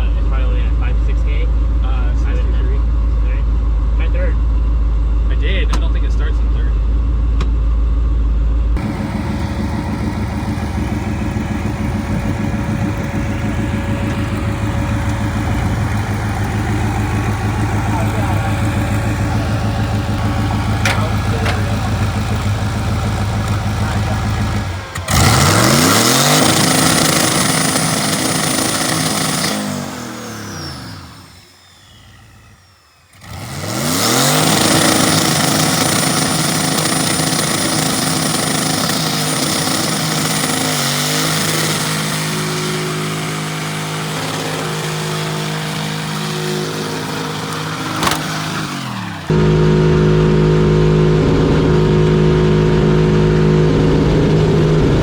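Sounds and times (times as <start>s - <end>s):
steady low drone: 6.2s - 28.1s, 49.2s - 55.0s
engine revving at high rpm: 8.8s - 55.0s
high steady whine: 49.3s - 55.0s.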